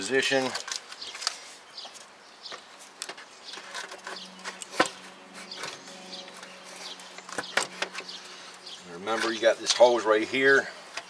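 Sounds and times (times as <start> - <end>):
engine parts clicking and knocking: 6.4 - 10.0.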